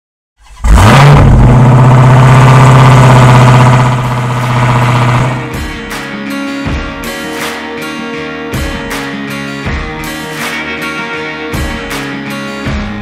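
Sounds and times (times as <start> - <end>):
car engine starting and idling: 0.4 - 5.6.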